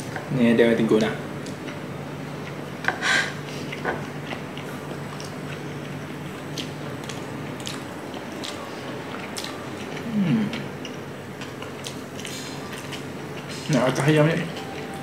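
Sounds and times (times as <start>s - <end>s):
chewing and mouth smacks: 3.5s - 14.8s
person humming: 10.1s - 10.6s.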